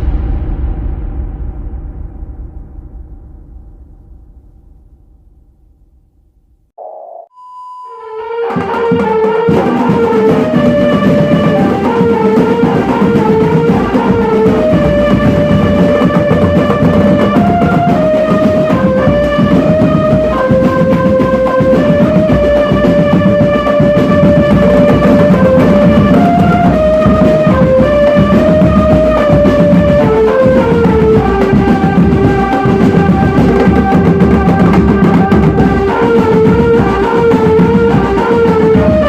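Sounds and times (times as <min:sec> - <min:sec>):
continuous drumming: 0:08.2 - 0:39.0.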